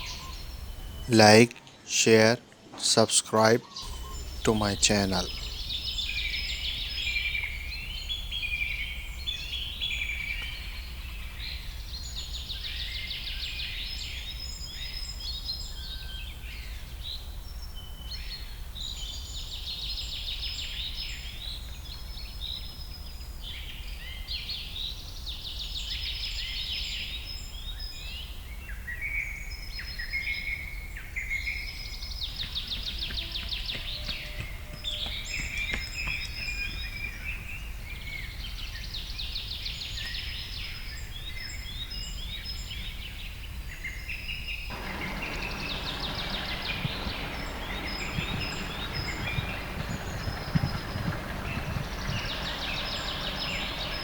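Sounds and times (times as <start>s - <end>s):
songbirds chirping: 0.0s - 23.0s, 29.9s - 54.0s
steady low rumble: 44.7s - 54.0s.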